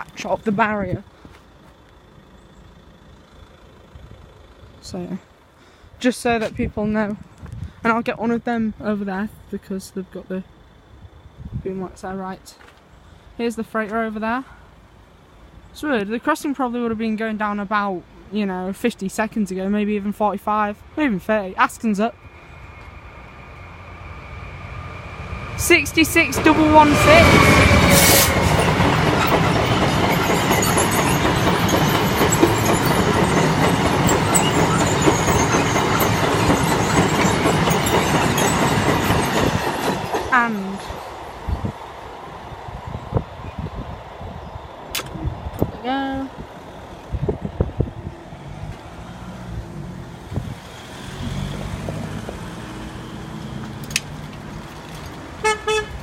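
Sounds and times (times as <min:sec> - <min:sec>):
freight train passing: 0:20.6 - 0:56.0
sharp click: 0:44.9 - 0:45.2
horn toot: 0:55.4 - 0:56.0.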